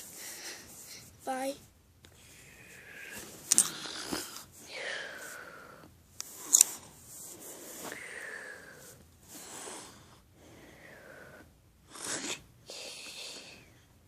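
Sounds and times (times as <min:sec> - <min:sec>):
girl breathing loudly: 0:07.8 - 0:11.5.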